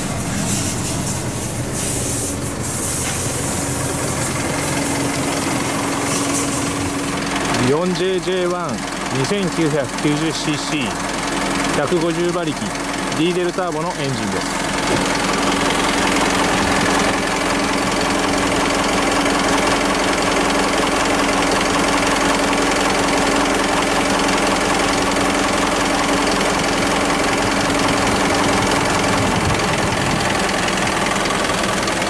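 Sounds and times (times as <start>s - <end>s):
steady hum: 0.0s - 7.8s
diesel engine idling: 0.0s - 32.0s.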